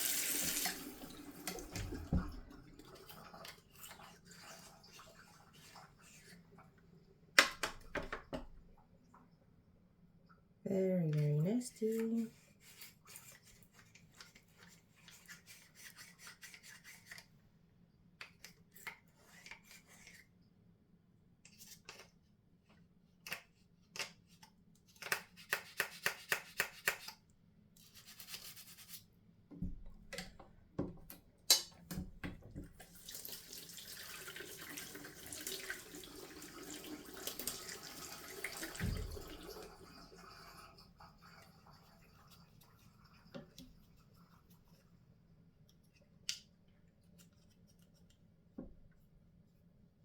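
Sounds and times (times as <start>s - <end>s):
running water pouring: 0.0s - 6.3s, 32.7s - 42.0s
toothbrush scrubbing plastic: 11.2s - 17.3s, 27.8s - 29.1s, 41.1s - 44.9s.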